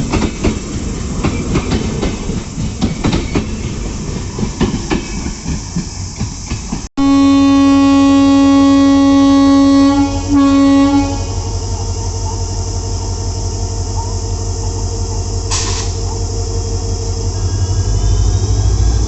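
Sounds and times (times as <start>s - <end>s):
train rumbling: 0.0s - 19.0s
locomotive horn blast: 7.0s - 11.5s
short hiss: 15.5s - 16.0s.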